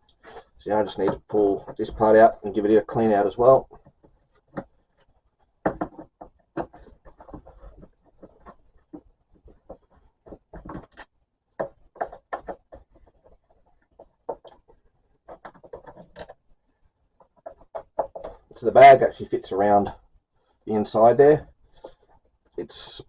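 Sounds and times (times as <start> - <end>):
vacuum cleaner parts clicking and knocking: 5.6 - 14.6.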